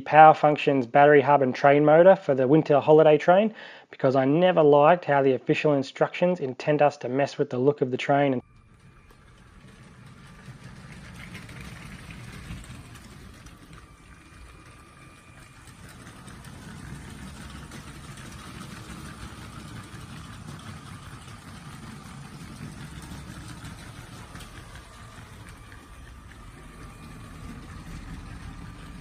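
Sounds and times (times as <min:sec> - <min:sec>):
toy train motor whine: 0:08.4 - 0:29.0
wheel rumble with clicking: 0:08.4 - 0:29.0.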